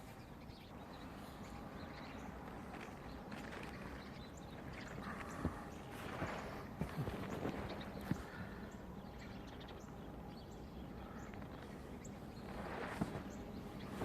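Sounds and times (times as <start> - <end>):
footsteps crunching in snow: 1.0 - 8.7, 11.3 - 14.0.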